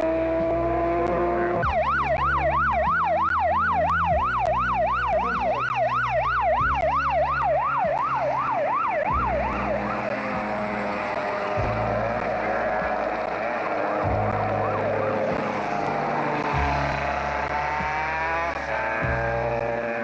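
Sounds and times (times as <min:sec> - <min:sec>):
siren in a fast yelp: 0:01.5 - 0:11.4, 0:12.4 - 0:16.4.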